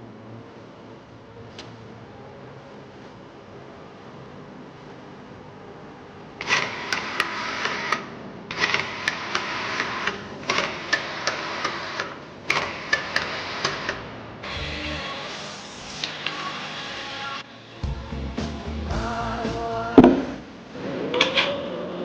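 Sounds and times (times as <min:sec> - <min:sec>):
workshop tool hissing and clicking: 0:06.4 - 0:17.4.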